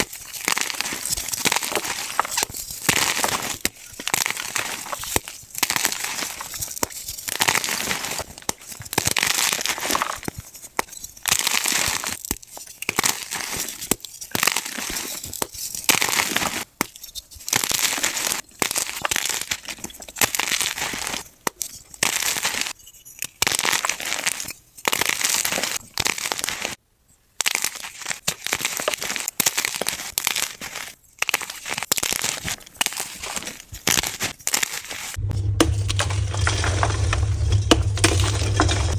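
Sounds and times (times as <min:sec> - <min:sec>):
chalk crunching: 0:00.0 - 0:21.3, 0:27.4 - 0:35.2.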